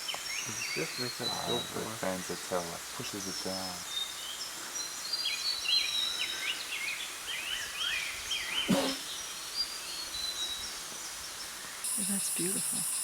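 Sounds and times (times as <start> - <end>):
quick repeated bird chirping: 8.5 - 9.2.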